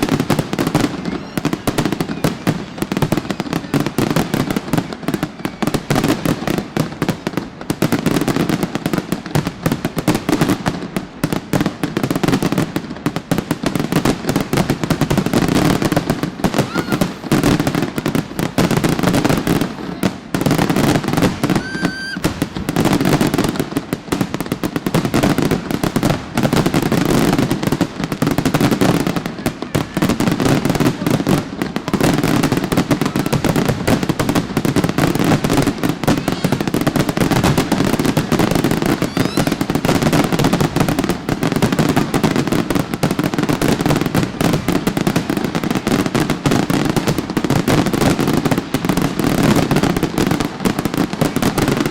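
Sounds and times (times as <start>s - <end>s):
firework whistle: 0.0s - 6.2s, 15.4s - 23.2s, 35.6s - 41.1s
fireworks bangs and crackles: 0.0s - 51.9s.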